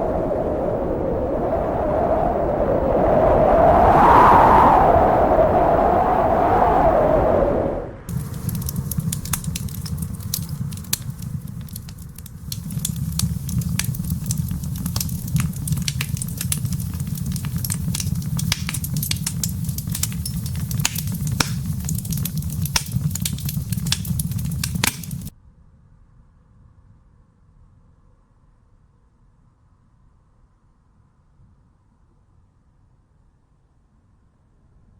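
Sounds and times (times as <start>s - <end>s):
low wind rumble: 0.0s - 25.3s
wood fire crackling and popping: 8.1s - 25.3s.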